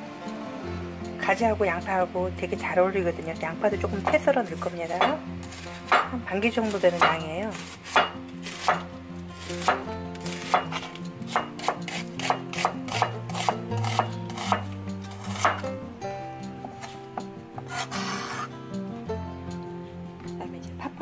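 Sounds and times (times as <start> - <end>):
knife striking wooden board: 5.9 - 6.2, 7.0 - 7.3, 7.9 - 8.9, 9.6 - 15.7.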